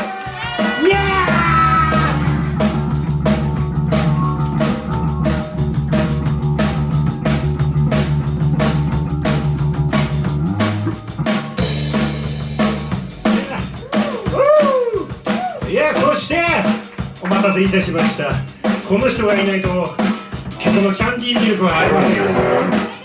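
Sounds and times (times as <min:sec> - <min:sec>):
rock drum kit: 0:00.0 - 0:23.0
electric bass: 0:00.8 - 0:15.3, 0:21.7 - 0:23.0.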